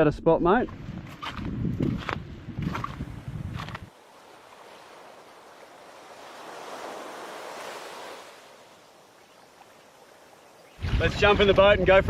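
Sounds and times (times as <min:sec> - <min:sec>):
wind rumble on microphone: 0:00.6 - 0:03.9, 0:10.7 - 0:12.0
waves washing on shore: 0:03.6 - 0:11.6.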